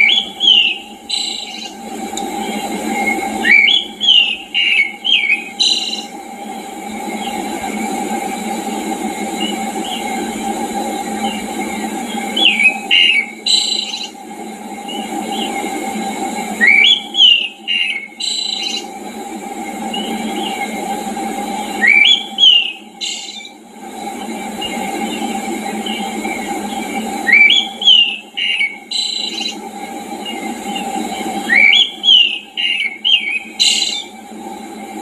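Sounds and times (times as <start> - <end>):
songbird singing whistled phrases: 0.0 - 1.7, 3.1 - 6.1, 12.4 - 14.2, 16.6 - 18.9, 21.8 - 23.5, 27.3 - 29.6, 31.5 - 34.1.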